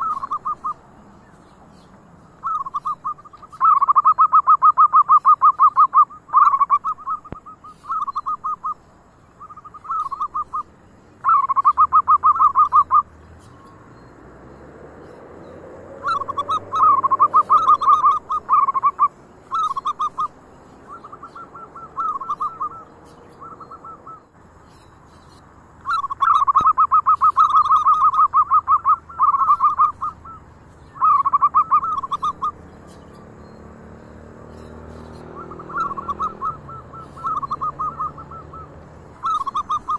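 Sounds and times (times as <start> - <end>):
doves cooing: 0.0 - 1.0, 1.9 - 14.4, 15.0 - 24.8, 25.8 - 39.9.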